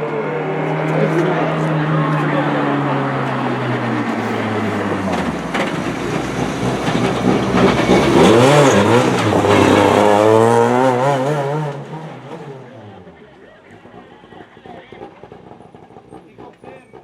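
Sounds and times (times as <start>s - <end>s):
rally car engine passing by: 0.0s - 17.0s.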